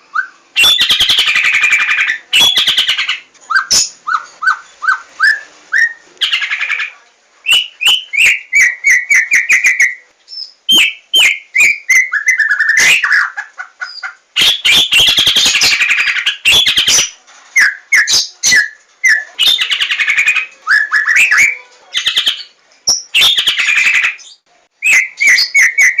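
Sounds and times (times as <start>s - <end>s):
bird harsh chattering: 0.6s - 5.1s, 5.8s - 10.0s, 10.7s - 26.0s
bird singing whistled notes: 7.4s - 13.3s, 17.6s - 26.0s.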